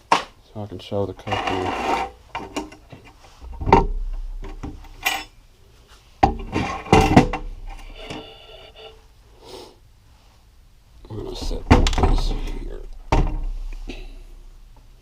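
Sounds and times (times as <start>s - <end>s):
metal parts knocking and clattering: 2.3s - 5.4s, 6.2s - 8.2s, 11.3s - 13.5s.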